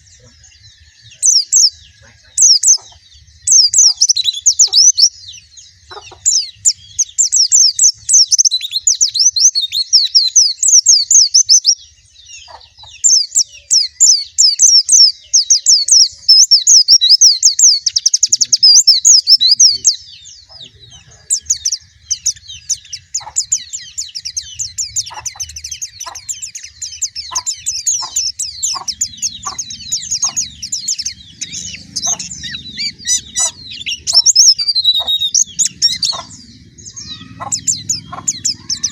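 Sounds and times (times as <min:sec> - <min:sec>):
bird twittering warble: 0:00.0 - 0:38.9.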